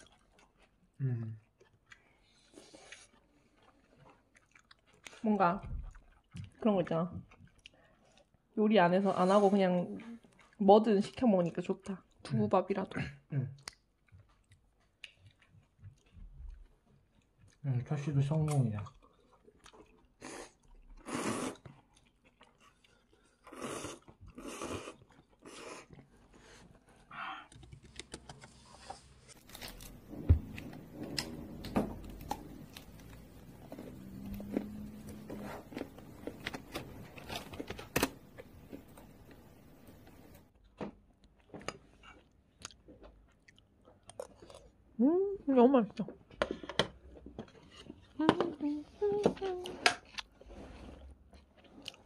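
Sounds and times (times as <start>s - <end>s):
person crunching food: 0.0s - 5.2s, 18.8s - 26.2s, 27.5s - 40.4s, 42.1s - 44.8s.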